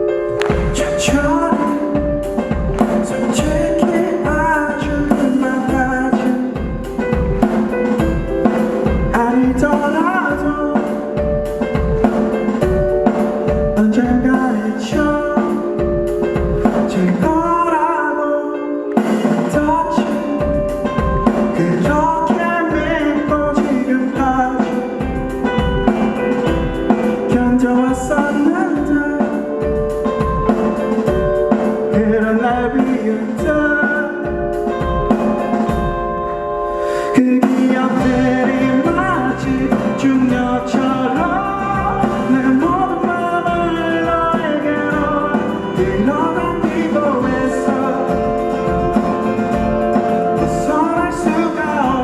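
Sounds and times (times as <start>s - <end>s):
drum kit beat: 0.0s - 17.7s, 18.9s - 52.0s
melodic guitar lines: 0.0s - 52.0s
bass guitar: 37.8s - 52.0s.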